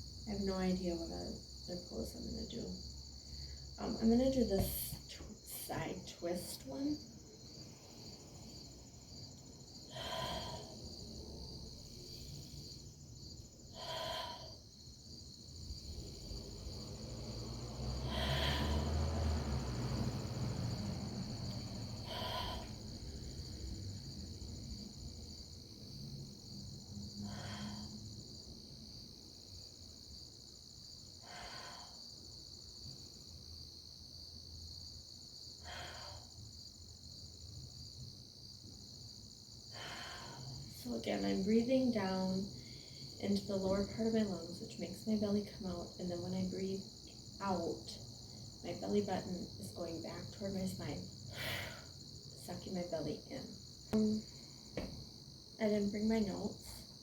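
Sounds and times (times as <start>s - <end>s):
crickets chirring: 0.0s - 57.0s
short breaths: 9.9s - 10.8s, 18.0s - 19.1s, 22.0s - 22.8s, 39.7s - 40.7s, 51.3s - 52.0s.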